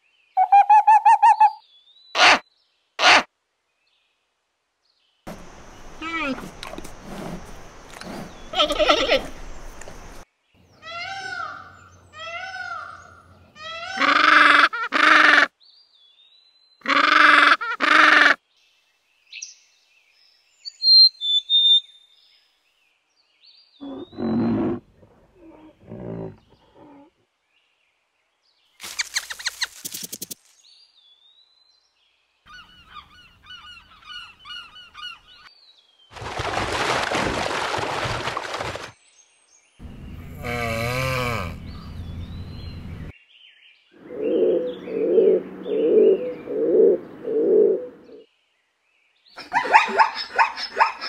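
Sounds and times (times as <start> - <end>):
high chirps: 0.4 - 1.6
peacock honking calls: 2.2 - 2.4, 10.8 - 15.5, 16.8 - 18.4, 39.8 - 43.1
low animal calls: 23.8 - 27.2, 39.8 - 43.1.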